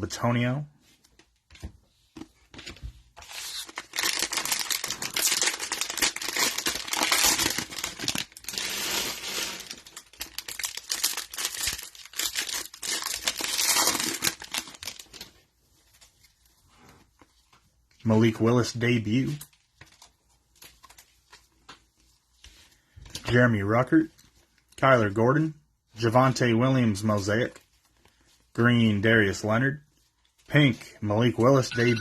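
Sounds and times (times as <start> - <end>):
cellophane crinkling and tearing: 2.7 - 16.4.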